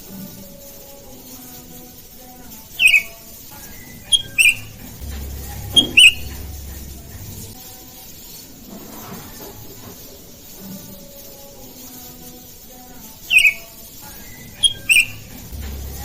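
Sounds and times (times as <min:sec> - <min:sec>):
bulbuls calling: 0:02.8 - 0:07.6, 0:13.2 - 0:16.0.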